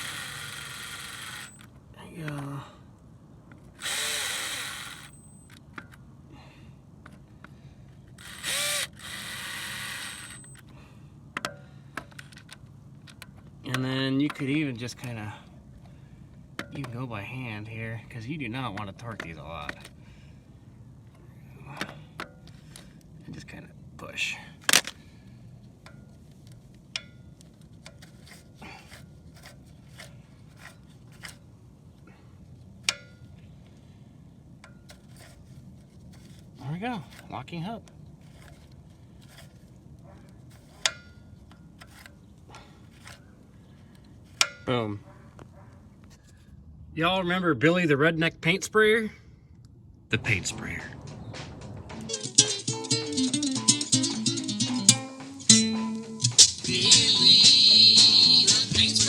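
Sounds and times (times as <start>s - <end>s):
cordless drill spinning: 0.0s - 1.7s, 3.7s - 5.5s, 8.1s - 10.7s
sharp clicks with short ring: 4.9s - 6.0s.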